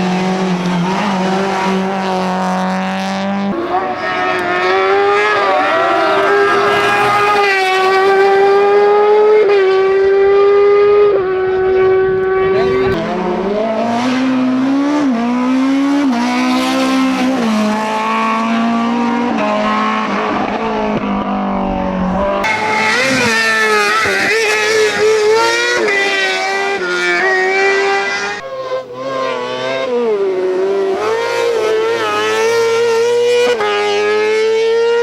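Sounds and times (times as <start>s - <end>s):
race car engine revving through gears: 0.0s - 35.0s
another engine: 3.5s - 14.5s, 22.1s - 28.4s.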